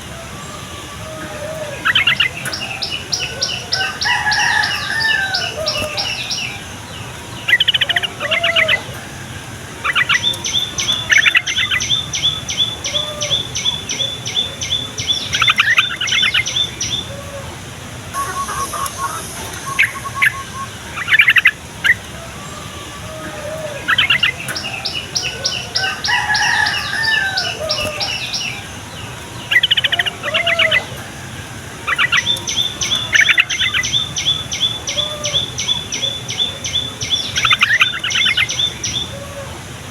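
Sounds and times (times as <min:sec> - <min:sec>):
bird warbled phrases: 0:00.0 - 0:39.8
bird sharp high notes: 0:18.1 - 0:22.2.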